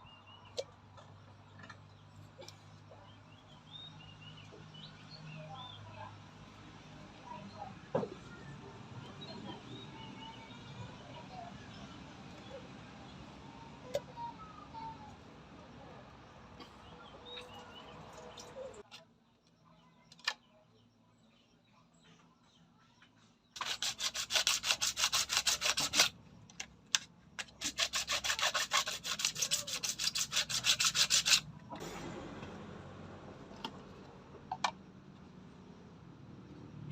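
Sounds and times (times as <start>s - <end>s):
hand tool scraping: 23.6s - 26.1s, 27.4s - 31.5s.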